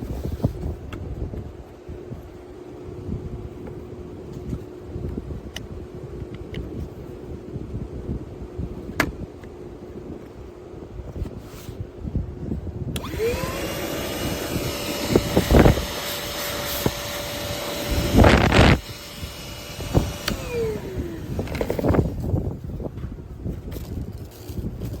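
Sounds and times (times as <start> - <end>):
rushes of air noise: 0.0 - 25.0
vacuum motor whining: 13.0 - 22.4.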